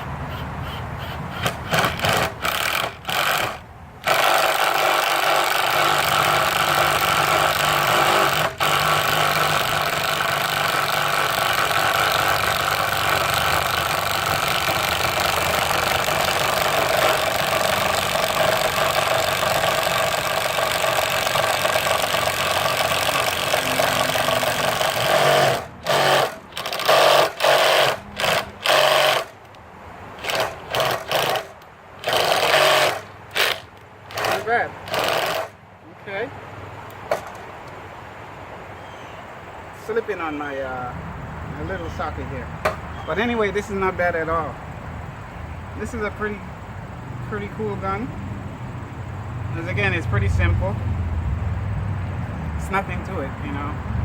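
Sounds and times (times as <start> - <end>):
impact driver hammering: 1.4 - 29.4.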